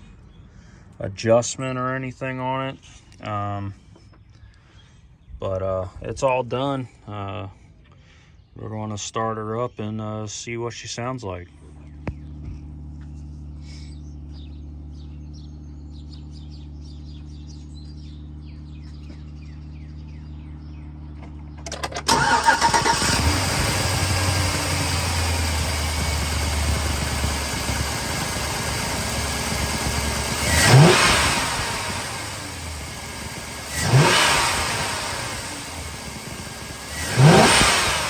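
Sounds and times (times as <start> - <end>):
truck engine starting and idling: 18.7 - 38.0
starter cranking: 21.6 - 25.4.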